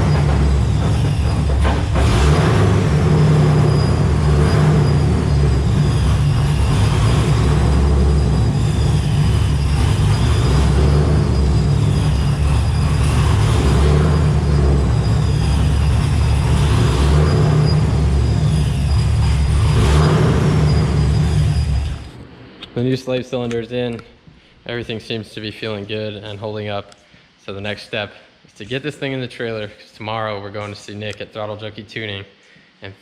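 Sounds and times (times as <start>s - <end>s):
car engine revving: 0.0s - 23.0s
supercharger whine: 0.0s - 24.1s.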